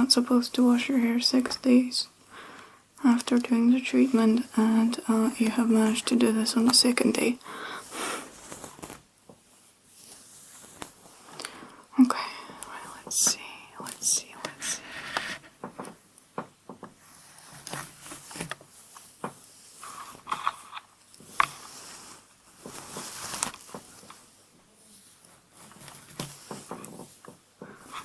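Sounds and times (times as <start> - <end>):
hair rustling and swishing: 7.9 - 11.4, 17.0 - 28.0.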